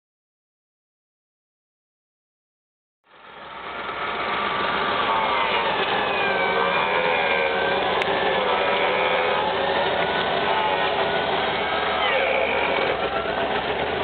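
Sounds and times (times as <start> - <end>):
petrol engine running steadily: 3.1 - 14.0.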